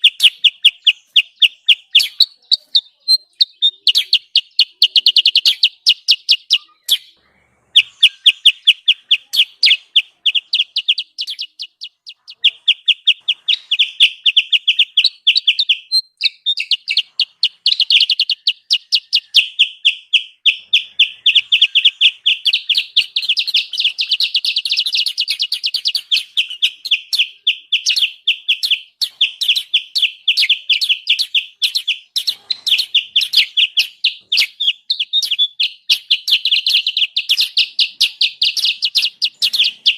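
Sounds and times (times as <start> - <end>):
rapid short bird chirps: 0.0 - 39.9.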